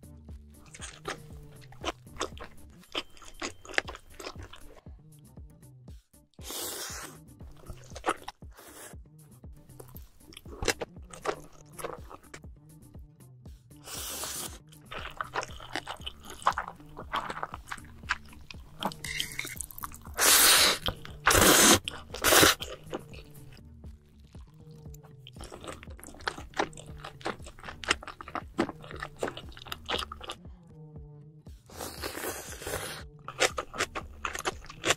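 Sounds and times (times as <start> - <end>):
background music: 0.0 - 34.9
crunching and chewing: 0.6 - 4.8, 6.9 - 8.9, 9.7 - 12.4, 13.9 - 30.4, 31.7 - 34.9.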